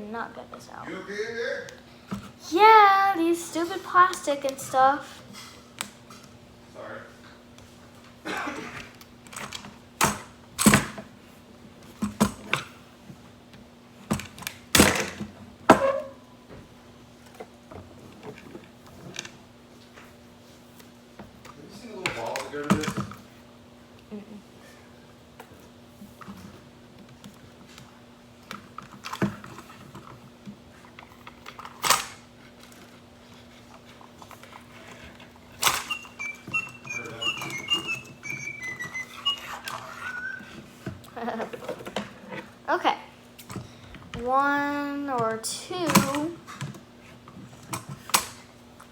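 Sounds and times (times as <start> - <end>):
high whistle-like toy notes: 35.7 - 40.5.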